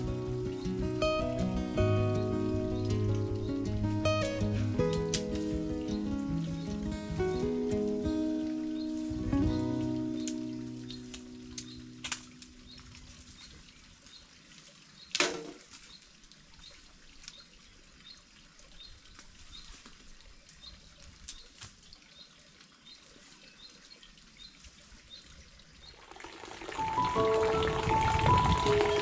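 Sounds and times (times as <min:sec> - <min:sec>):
water dripping: 0:00.0 - 0:22.9, 0:25.6 - 0:29.0
faint rain: 0:00.0 - 0:29.0
high chirp: 0:26.7 - 0:29.0.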